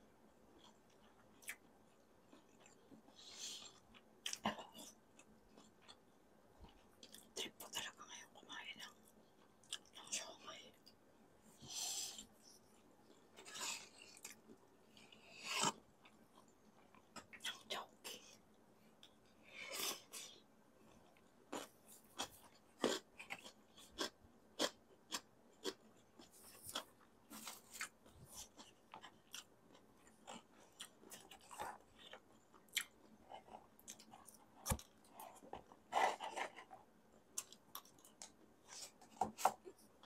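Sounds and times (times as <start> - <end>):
chewing and wet mouth sounds: 0.6 - 6.0, 8.8 - 11.0, 20.9 - 39.8.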